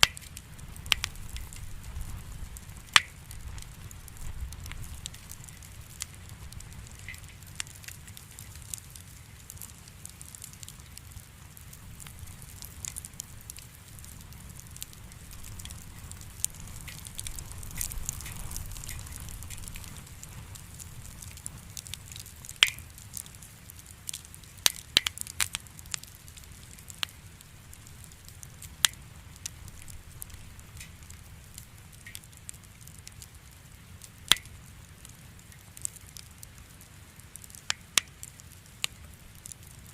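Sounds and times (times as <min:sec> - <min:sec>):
campfire crackling: 0:00.0 - 0:39.9
low rumble of fire: 0:00.0 - 0:39.9
wood snapping pops: 0:03.0 - 0:03.2, 0:22.6 - 0:22.9, 0:24.1 - 0:25.6.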